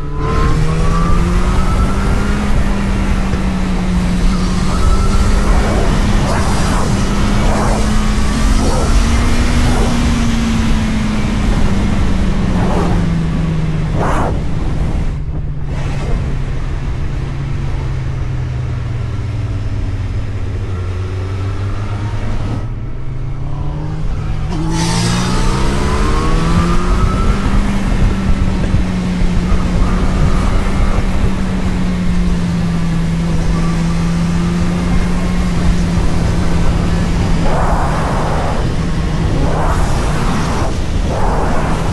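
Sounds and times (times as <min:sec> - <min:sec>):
road and wind noise: 0:00.0 - 0:41.9
vehicle engine droning: 0:00.0 - 0:41.9
brief whoosh: 0:04.2 - 0:10.9, 0:12.4 - 0:16.3.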